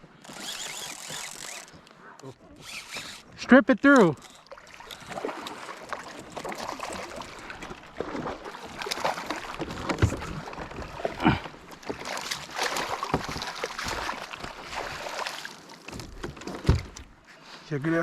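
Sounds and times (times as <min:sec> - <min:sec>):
fishing gear knocks and scrapes: 0:08.8 - 0:10.8.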